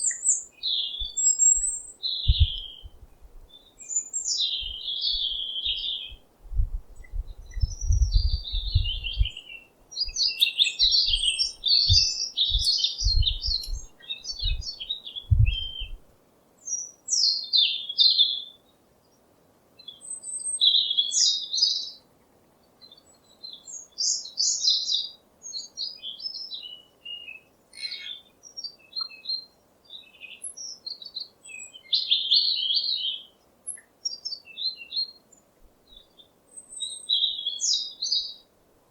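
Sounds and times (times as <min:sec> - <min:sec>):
songbirds twittering: 0:00.0 - 0:16.0, 0:19.8 - 0:38.5
low thuds: 0:06.5 - 0:09.4, 0:11.9 - 0:14.6, 0:15.3 - 0:16.0.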